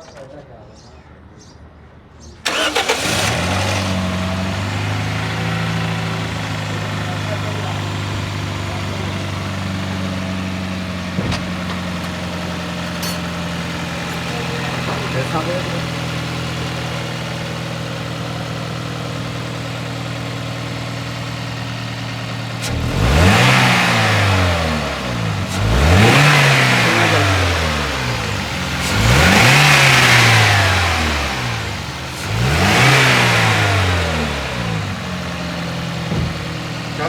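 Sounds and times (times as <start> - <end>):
car engine idling and revving: 2.4 - 37.0.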